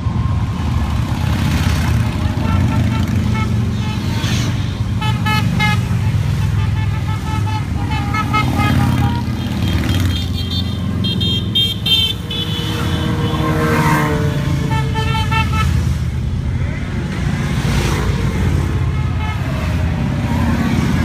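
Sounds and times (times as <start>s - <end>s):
motorcycle engines passing: 0.0s - 21.0s
horns beeping: 1.4s - 16.7s.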